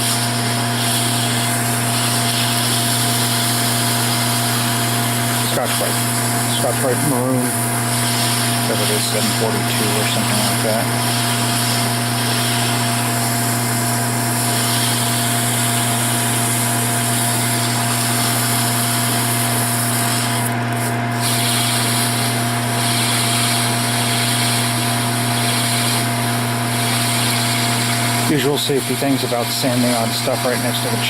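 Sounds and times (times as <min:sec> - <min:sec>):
metal lathe motor humming: 0:00.0 - 0:31.0
abrasive pad rubbing hiss: 0:00.8 - 0:13.4.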